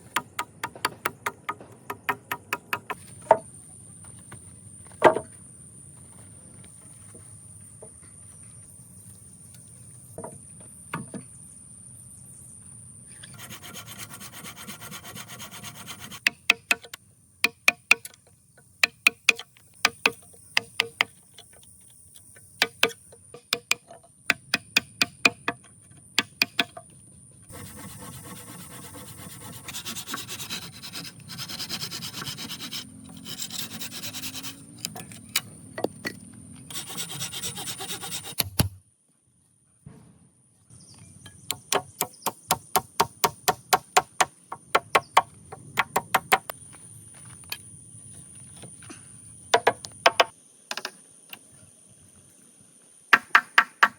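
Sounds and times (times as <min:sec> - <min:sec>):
rasping scraping strokes: 0:27.5 - 0:34.7, 0:36.7 - 0:38.5.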